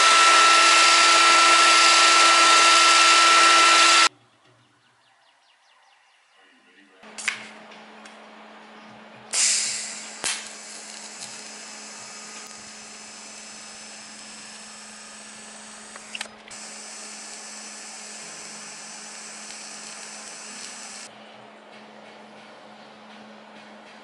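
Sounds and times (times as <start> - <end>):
high-pitched regulator whine: 0.0 - 4.1, 9.4 - 21.1
welding arc hiss: 9.3 - 21.1.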